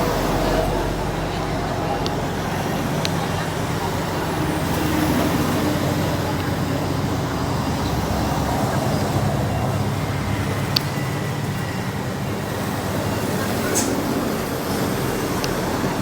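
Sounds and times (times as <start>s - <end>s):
heavy diesel machinery running: 0.0s - 16.0s.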